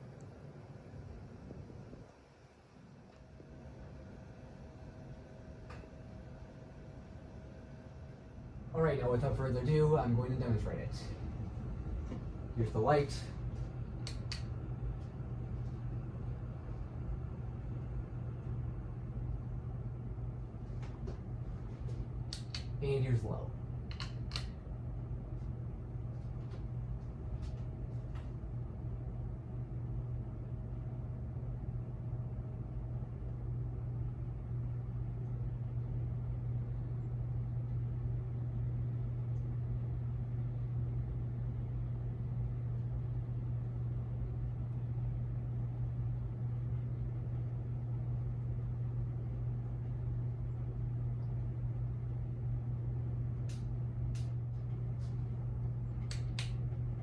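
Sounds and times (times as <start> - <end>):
ceiling fan motor hum: 0.0 - 57.0
light clicks: 14.0 - 14.5, 22.3 - 22.8, 23.9 - 24.6, 53.5 - 54.4, 56.0 - 56.6.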